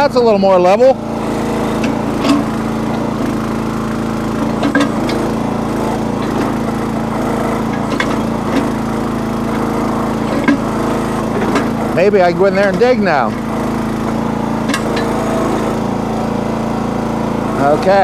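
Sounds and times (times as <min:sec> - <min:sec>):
small engine running: 0:00.0 - 0:18.0
machine knocks: 0:14.1 - 0:15.3.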